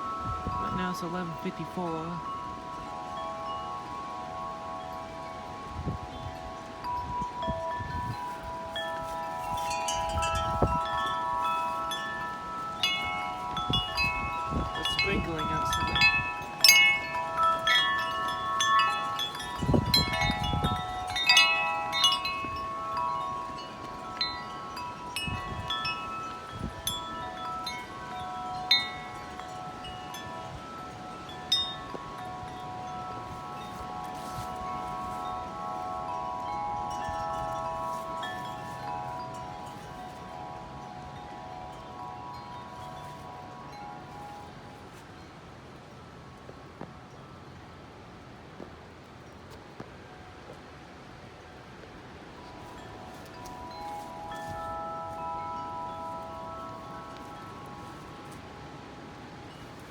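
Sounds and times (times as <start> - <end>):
metal wind chime ringing: 0.0 - 45.4, 52.0 - 59.9
wind buffeting microphone: 5.5 - 44.7.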